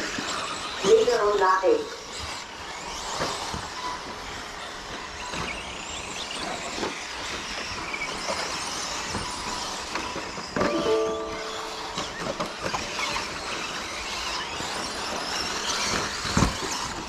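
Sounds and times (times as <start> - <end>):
short steady tone: 10.6 - 12.4.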